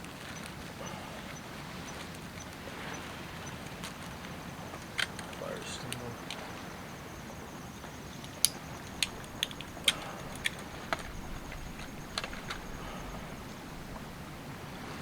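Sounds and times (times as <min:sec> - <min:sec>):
background hiss: 0:00.0 - 0:15.0
hands handling materials clicking: 0:03.5 - 0:06.6, 0:07.9 - 0:14.0.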